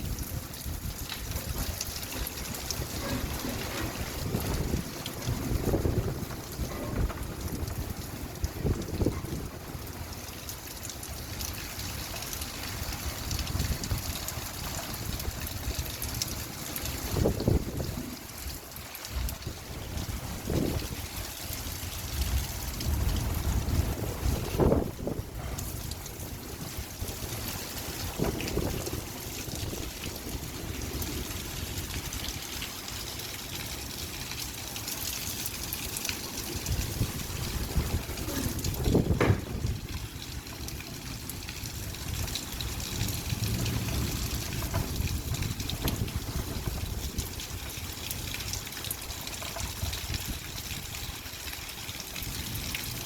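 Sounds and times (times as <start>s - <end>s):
light rain falling: 0.0s - 53.0s
low uneven rumble: 37.0s - 40.3s.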